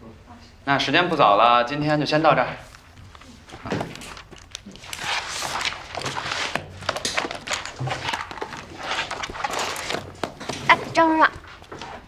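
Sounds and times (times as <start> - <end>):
people shuffling: 2.5 - 12.0
footsteps: 2.6 - 12.0.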